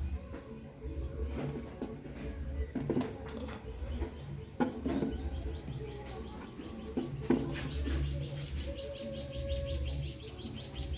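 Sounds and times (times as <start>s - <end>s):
bird trilling chatter: 5.2s - 10.9s.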